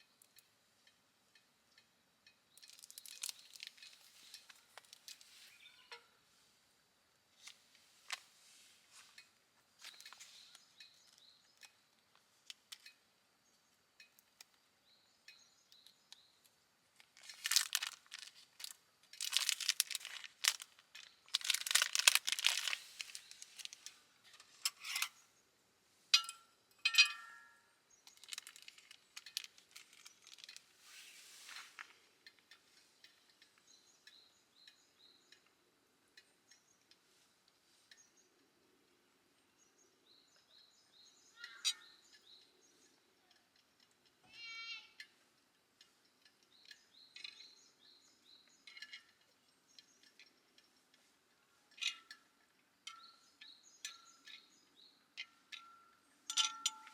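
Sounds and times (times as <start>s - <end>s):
crinkling and rustling handling: 2.6s - 6.0s, 7.4s - 13.0s, 17.0s - 25.2s, 28.0s - 33.6s.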